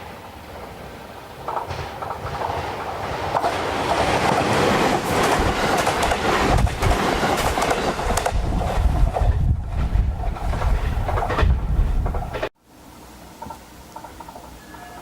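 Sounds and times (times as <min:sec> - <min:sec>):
train running noise: 0:00.0 - 0:12.5, 0:13.4 - 0:15.0
train wheels clattering over joints: 0:01.4 - 0:12.5.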